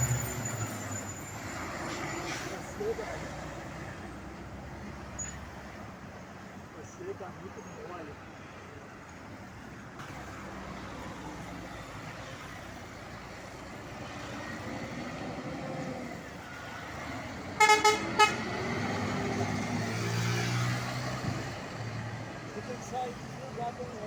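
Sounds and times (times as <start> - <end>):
diesel truck engine running: 0.0 - 4.9
truck air horn toots: 17.6 - 18.6.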